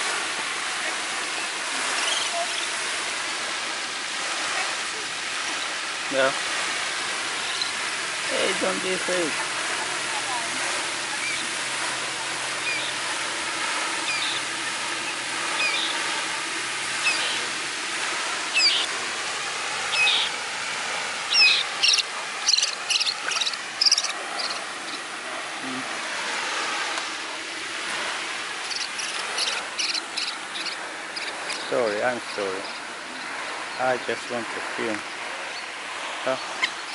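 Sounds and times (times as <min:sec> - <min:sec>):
flowing water: 0:00.0 - 0:36.9
small animal chirping calls: 0:18.6 - 0:18.9, 0:19.9 - 0:20.3, 0:21.3 - 0:25.0, 0:28.7 - 0:31.6.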